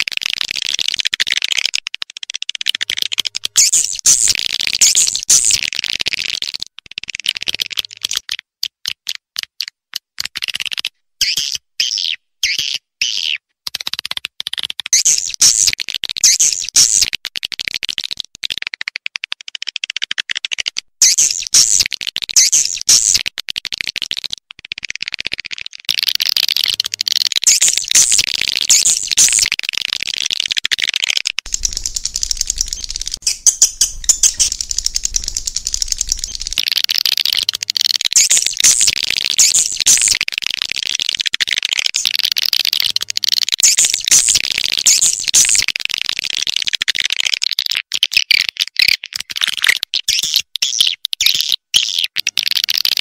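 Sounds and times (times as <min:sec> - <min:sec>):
swiftlets chirping and twittering: 0:03.6 - 0:05.6, 0:21.0 - 0:21.8, 0:22.4 - 0:23.2, 0:27.4 - 0:30.2, 0:31.5 - 0:40.2, 0:43.6 - 0:45.7.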